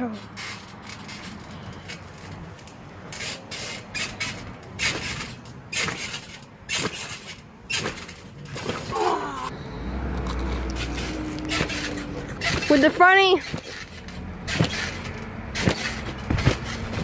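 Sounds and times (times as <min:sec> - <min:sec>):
trampoline bouncing thumps: 0:00.0 - 0:09.5, 0:10.7 - 0:17.0
person shouting: 0:08.9 - 0:09.6.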